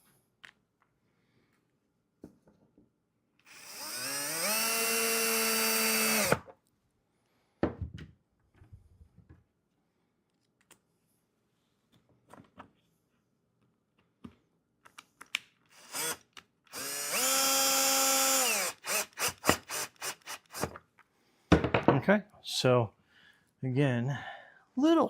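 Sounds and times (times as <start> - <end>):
power drill whining: 3.4 - 6.5, 15.7 - 20.8
knock: 21.5 - 22.0.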